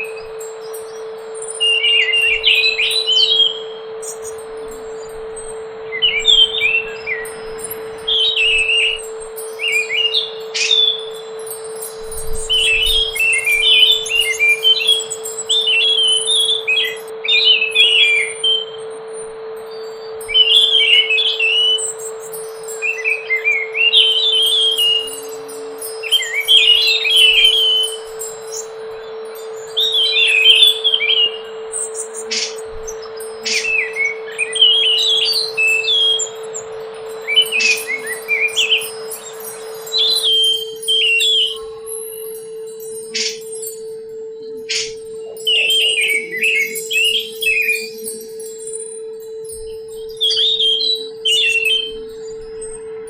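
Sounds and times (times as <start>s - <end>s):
steady low hum: 0.0s - 53.0s
thrush singing: 0.0s - 53.0s.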